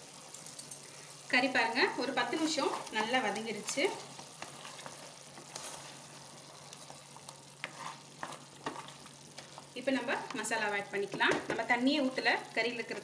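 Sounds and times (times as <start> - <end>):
meat sizzling in a pot: 0.0 - 13.0
wooden spatula scraping a pot: 2.2 - 10.4.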